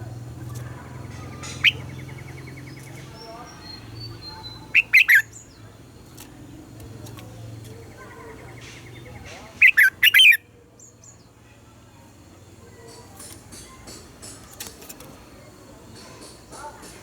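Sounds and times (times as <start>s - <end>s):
faint bird chirps: 0.4s - 5.7s, 7.7s - 13.2s
bird singing whistled notes: 1.5s - 5.4s, 9.6s - 10.4s.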